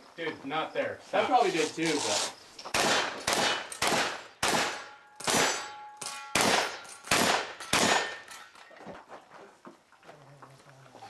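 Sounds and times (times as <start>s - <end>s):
shotgun bangs: 2.7s - 8.4s
steel plates clanging: 5.4s - 8.8s.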